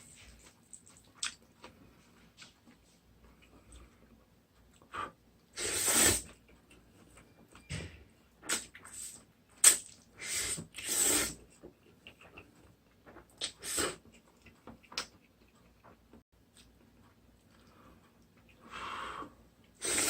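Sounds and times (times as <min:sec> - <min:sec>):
noodles being slurped: 0:19.8 - 0:20.0.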